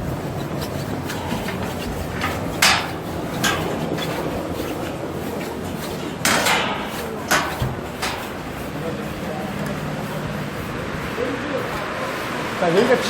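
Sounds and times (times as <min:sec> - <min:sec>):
sharp knocks: 0:00.0 - 0:08.8
rubbing sounds: 0:00.0 - 0:13.0
steady rushing noise: 0:00.0 - 0:13.0.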